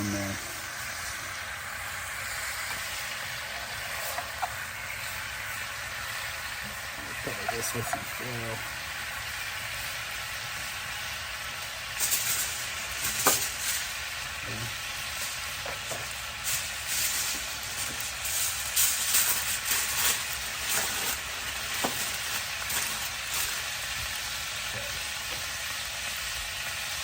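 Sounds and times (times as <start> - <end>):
meat sizzling in a pan: 0.0 - 27.0
crackly rustles: 15.2 - 24.4.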